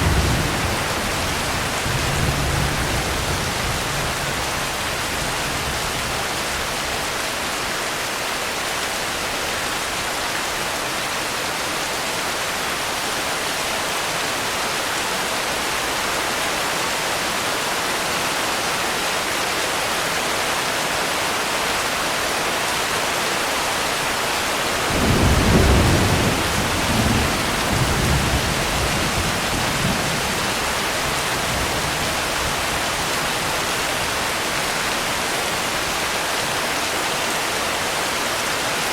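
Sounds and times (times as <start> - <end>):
thunder clap rumbling: 0.0 - 6.3, 24.8 - 32.0
steady rain: 0.0 - 38.9.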